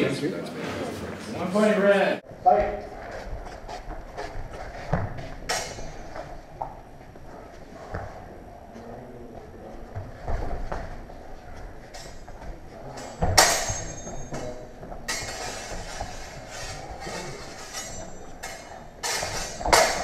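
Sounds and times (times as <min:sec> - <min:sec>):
swords clashing: 0:05.4 - 0:06.4, 0:13.0 - 0:20.0.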